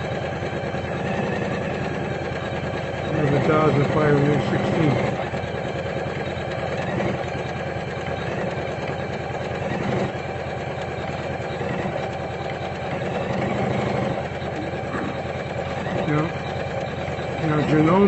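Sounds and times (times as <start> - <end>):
embroidery machine stitching: 0.0 - 18.0.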